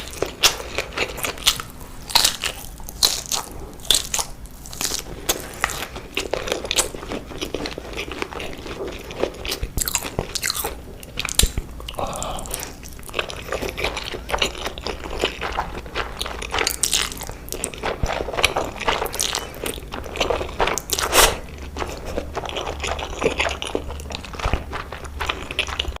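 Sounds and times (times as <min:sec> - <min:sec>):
crunchy bites and chewing: 0:00.0 - 0:26.0.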